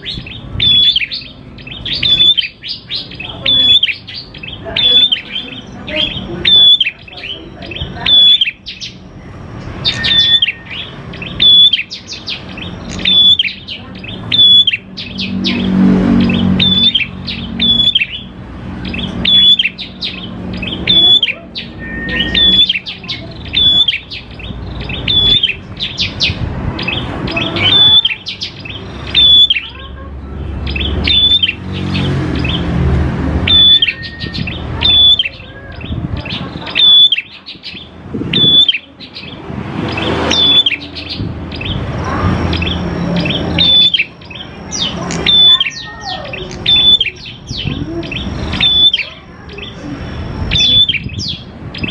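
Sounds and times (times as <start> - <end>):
bird singing sharp chirps: 0.0 - 29.8, 30.4 - 51.9.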